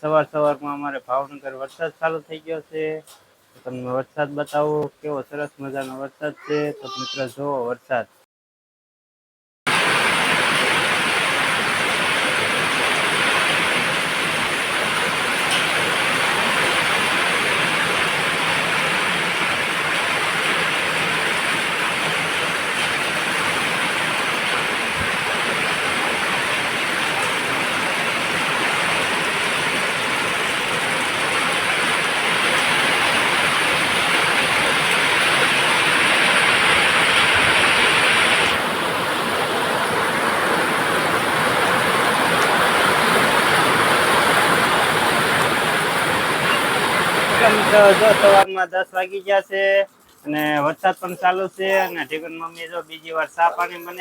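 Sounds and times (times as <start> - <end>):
steady rain falling: 9.7 - 48.5.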